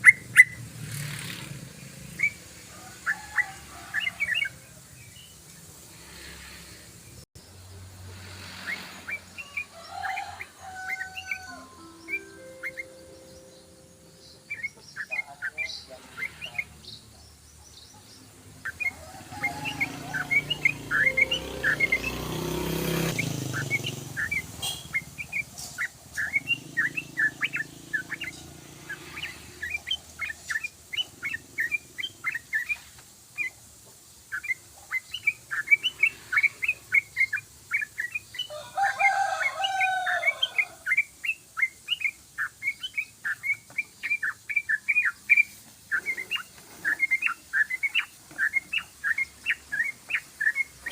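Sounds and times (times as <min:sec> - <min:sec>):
bulbul singing fast chirps: 0:00.0 - 0:03.2, 0:08.4 - 0:50.9
lower bird call: 0:18.6 - 0:33.6.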